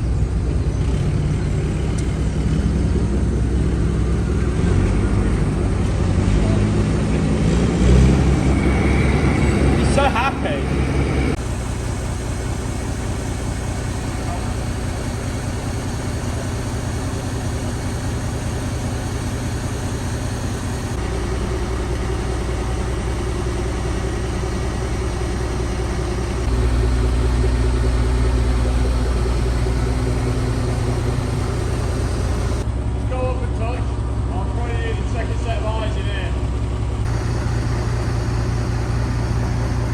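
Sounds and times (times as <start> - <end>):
crane diesel engine running: 0.0 - 39.9.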